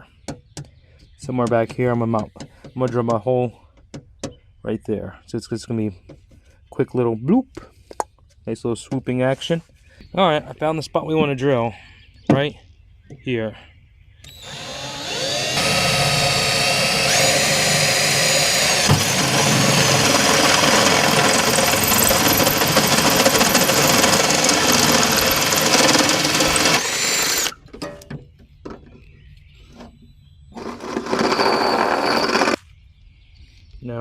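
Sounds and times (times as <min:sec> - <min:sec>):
power drill boring through aluminum: 0:14.2 - 0:27.6, 0:30.6 - 0:32.6.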